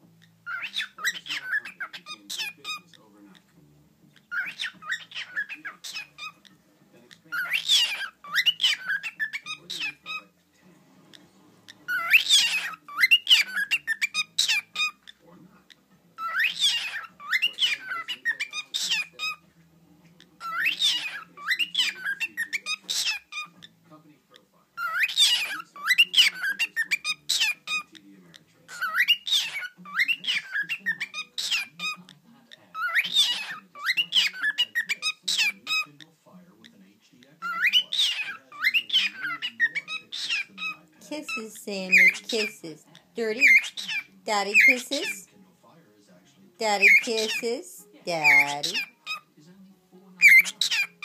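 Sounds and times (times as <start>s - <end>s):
cockatiel chirping and whistling: 0.2s - 2.9s, 4.2s - 6.4s, 7.3s - 10.2s, 11.9s - 15.2s, 16.2s - 19.4s, 20.4s - 23.7s, 24.8s - 27.9s, 28.7s - 32.1s, 32.8s - 35.9s, 37.4s - 40.8s, 43.4s - 44.8s, 48.2s - 49.2s, 50.2s - 51.0s.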